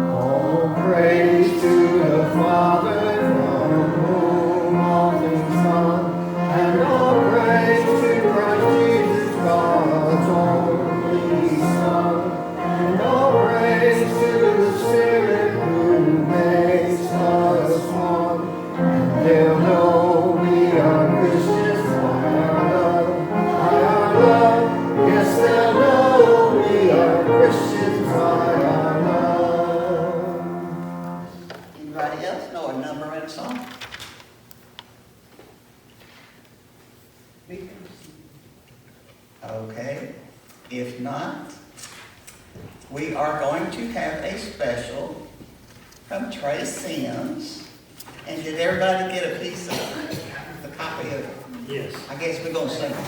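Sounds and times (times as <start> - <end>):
congregation singing a hymn: 0.0 - 31.7, 48.5 - 51.3.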